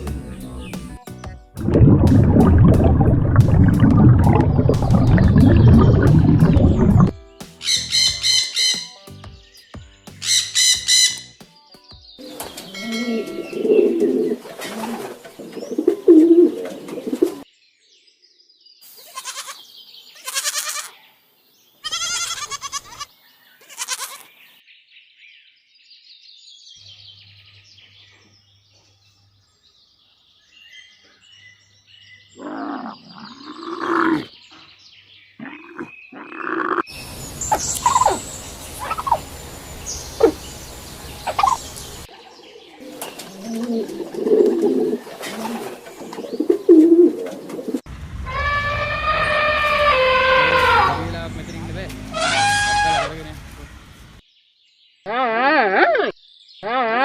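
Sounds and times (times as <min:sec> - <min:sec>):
bird calls: 0:02.2 - 0:11.4, 0:12.1 - 0:17.5, 0:26.8 - 0:53.4.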